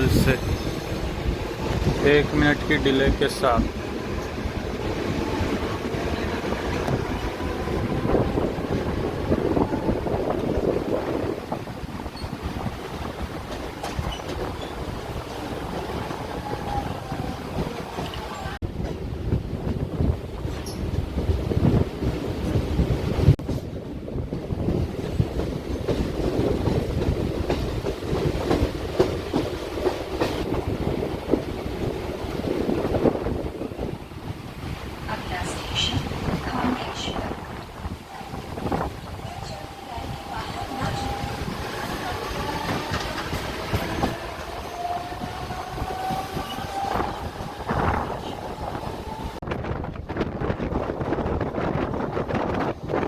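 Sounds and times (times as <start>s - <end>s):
train wheels rumbling on track: 0.0s - 53.0s
wheels clattering over rail joints: 9.4s - 15.9s.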